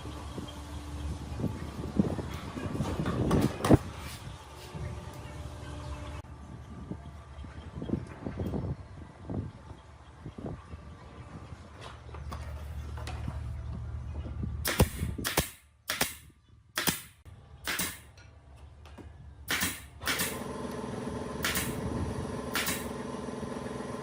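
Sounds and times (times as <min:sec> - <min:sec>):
low machine hum: 0:04.3 - 0:14.6, 0:20.4 - 0:24.0
humming machine motor: 0:20.2 - 0:24.0.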